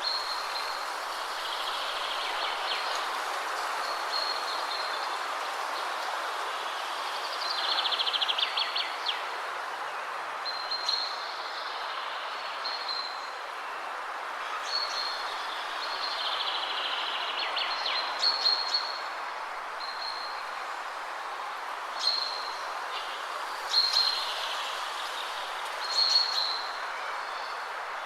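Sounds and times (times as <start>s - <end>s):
wind rushing through trees: 0.0s - 28.0s
songbirds singing: 22.0s - 28.0s.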